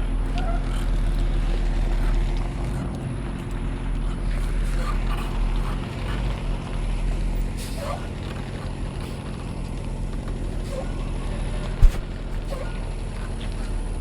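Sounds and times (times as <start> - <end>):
vehicle engine running: 0.0 - 14.0
sharp thump: 11.8 - 12.0.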